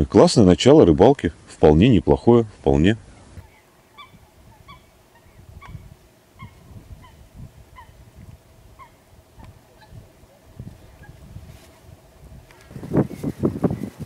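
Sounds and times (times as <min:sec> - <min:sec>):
bird calling: 0:03.1 - 0:11.7.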